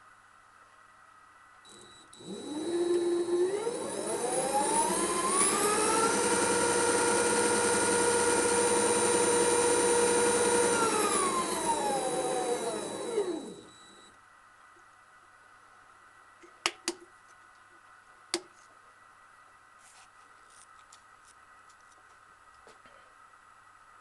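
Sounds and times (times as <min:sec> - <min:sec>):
lathe motor whining: 0:01.7 - 0:14.1.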